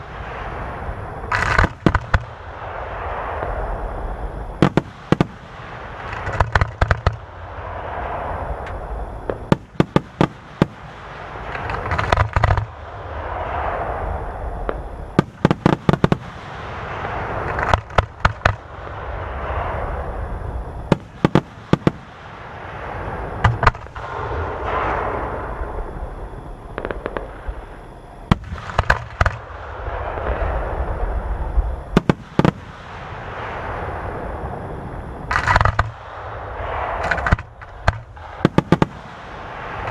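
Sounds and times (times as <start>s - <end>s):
crackling hiss: 0.0s - 39.9s
firework shells bursting: 1.3s - 2.3s, 4.6s - 7.3s, 9.3s - 12.8s, 17.3s - 18.7s, 20.9s - 22.2s, 23.4s - 24.1s, 28.3s - 29.5s, 32.0s - 32.8s, 35.3s - 39.9s
low rumble: 10.4s - 15.4s, 16.4s - 39.9s.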